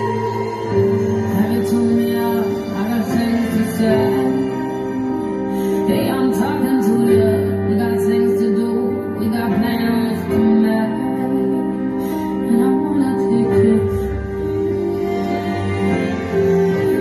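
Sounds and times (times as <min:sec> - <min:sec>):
slow gentle music: 0:00.0 - 0:17.0
woman singing: 0:00.0 - 0:17.0.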